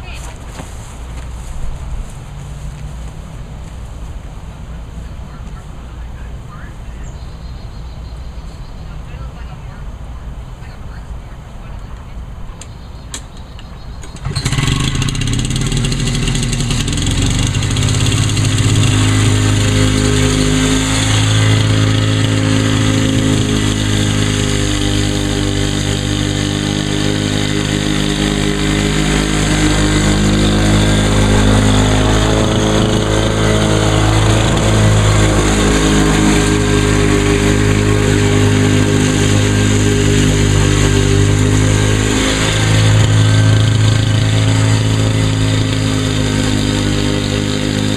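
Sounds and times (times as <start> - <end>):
lawn mower engine running: 14.0 - 47.9.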